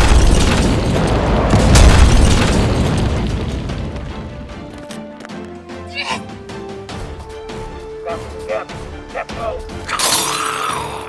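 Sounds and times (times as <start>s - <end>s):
explosion booms: 0.0s - 4.6s.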